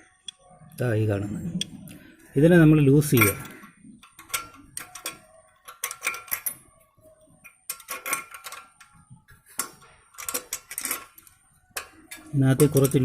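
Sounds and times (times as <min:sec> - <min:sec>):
spanner clicking on metal: 0:03.2 - 0:06.6, 0:07.4 - 0:13.0.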